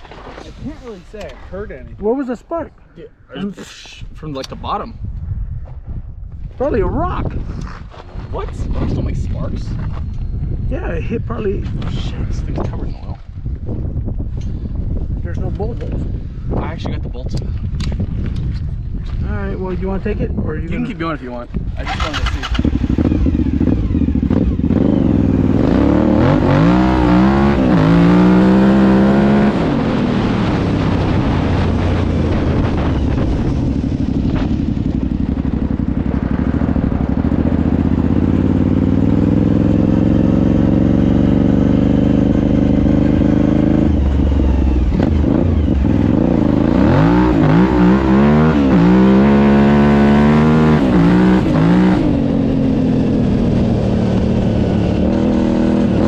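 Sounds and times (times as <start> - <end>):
quad engine revving: 21.8 - 56.0.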